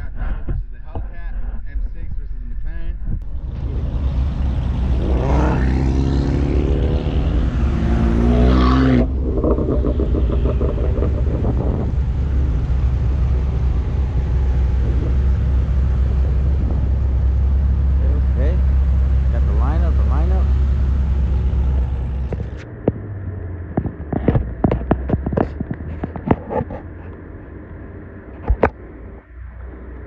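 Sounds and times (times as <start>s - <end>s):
car engines droning: 3.2s - 30.0s
nearby car engine rising and falling: 3.2s - 30.0s
fast pulsing engine note: 3.3s - 22.6s.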